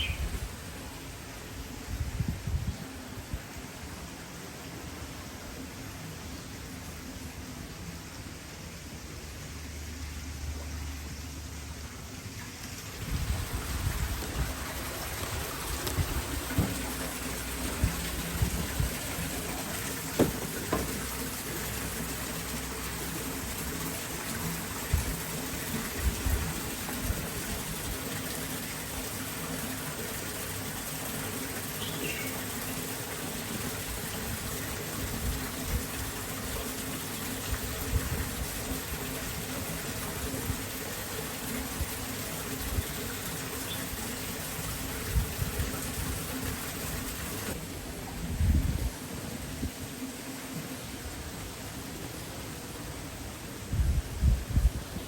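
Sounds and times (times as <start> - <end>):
heavy rain pouring: 12.8 - 55.0.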